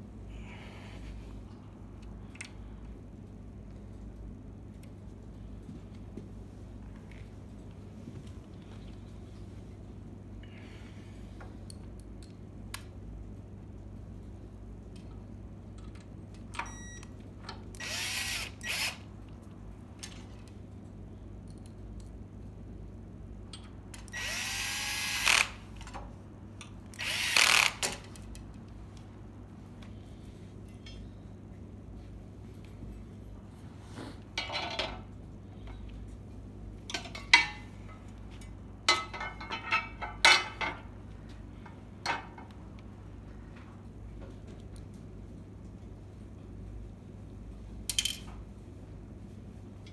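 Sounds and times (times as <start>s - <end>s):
power drill spinning: 17.8s - 19.0s, 24.1s - 25.7s, 27.0s - 28.0s.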